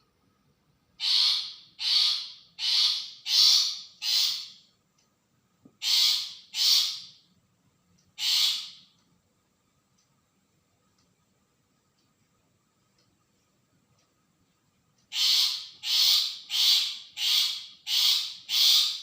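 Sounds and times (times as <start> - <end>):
shrike harsh rasping calls: 1.0 - 4.6, 8.2 - 8.8, 15.1 - 19.0.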